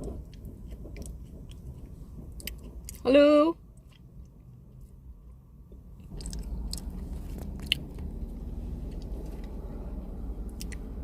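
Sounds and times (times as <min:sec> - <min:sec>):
low steady rumble: 0:00.0 - 0:11.0
chewing and biting food: 0:06.0 - 0:09.5.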